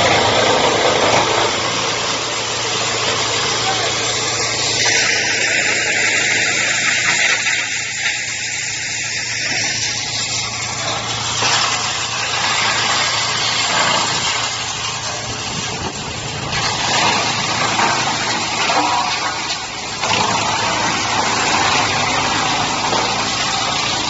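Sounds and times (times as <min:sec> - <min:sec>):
wood chipper running: 0:00.0 - 0:24.0.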